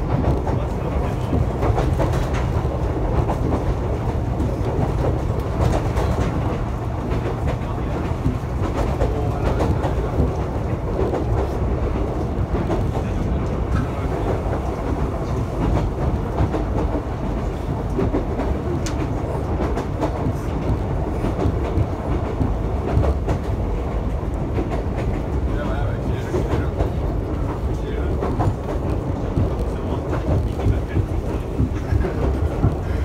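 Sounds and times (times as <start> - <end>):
train wheels rumbling on rails: 0.0 - 33.0
faint track clicks: 4.4 - 23.6.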